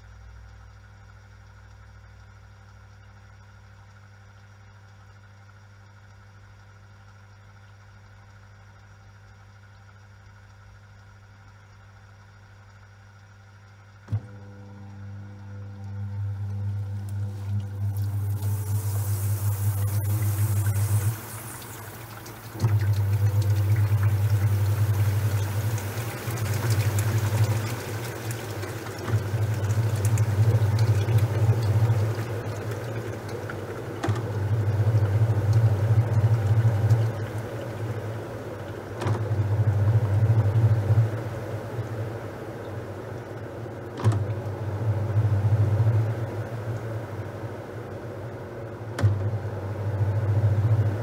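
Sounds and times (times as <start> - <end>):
washing machine motor humming: 10.9 - 51.0
washing machine click: 19.6 - 39.5, 43.9 - 44.4.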